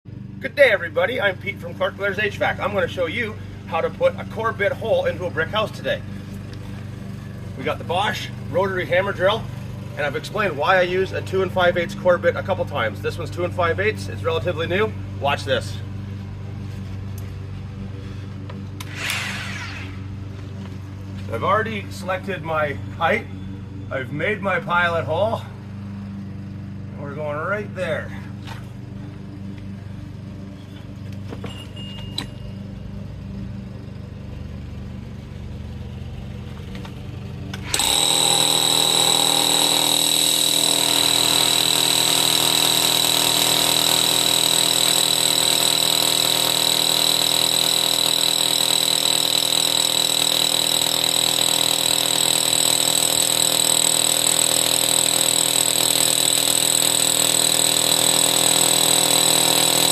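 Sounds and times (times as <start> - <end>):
hammer drill whining into brick: 18.8 - 20.1, 37.6 - 59.9.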